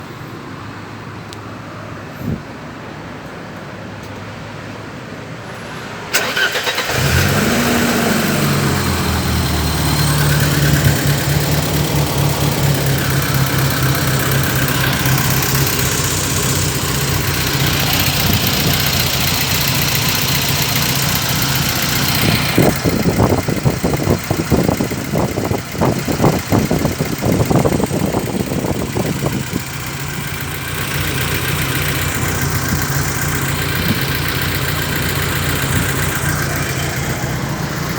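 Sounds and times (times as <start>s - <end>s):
car engine starting and idling: 5.4s - 37.9s
rapid engine clatter: 6.1s - 37.9s.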